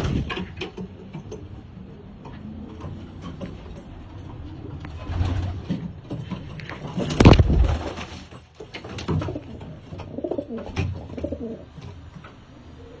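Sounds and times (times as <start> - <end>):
pigeons cooing: 9.1 - 11.9.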